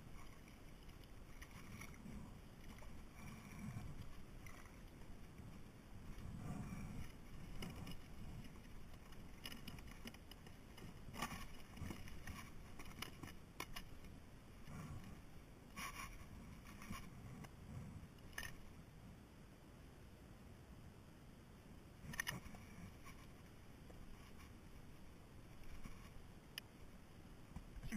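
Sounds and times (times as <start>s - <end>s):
low rumble of water and wind: 0.0s - 27.9s.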